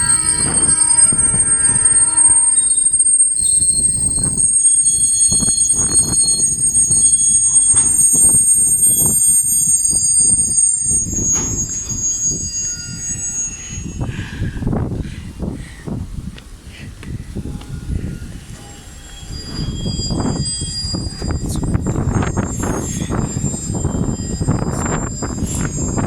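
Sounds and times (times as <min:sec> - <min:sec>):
train wheels squealing on rails: 0:00.0 - 0:16.0, 0:16.8 - 0:26.0.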